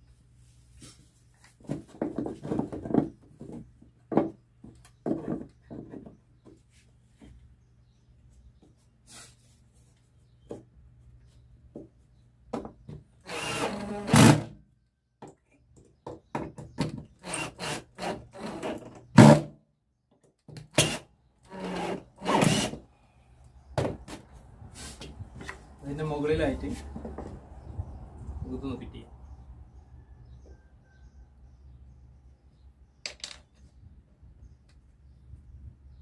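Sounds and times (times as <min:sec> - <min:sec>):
knocks and clicks of tools and wood: 0:11.6 - 0:14.4, 0:15.2 - 0:17.2, 0:33.0 - 0:33.7.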